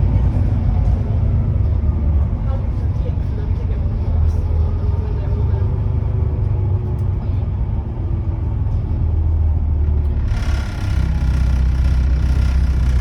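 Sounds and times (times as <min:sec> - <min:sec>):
bus diesel engine rumbling: 0:00.0 - 0:13.0
bright rattly noise: 0:10.1 - 0:13.0.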